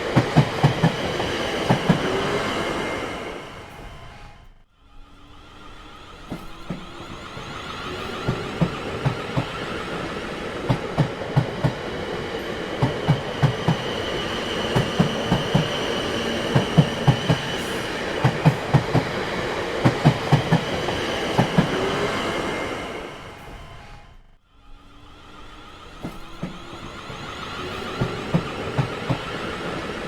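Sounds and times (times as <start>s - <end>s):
train rumbling along track: 0.0s - 30.0s.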